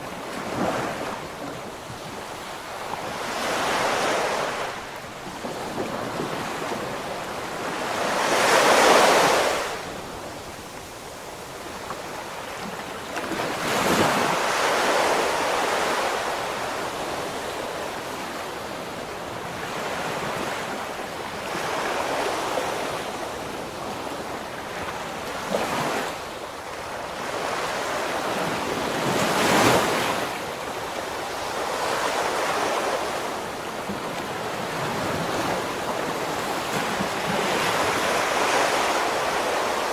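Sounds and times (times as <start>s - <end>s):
wind on microphone: 0.0s - 26.1s
ocean waves breaking on shore: 0.0s - 39.9s.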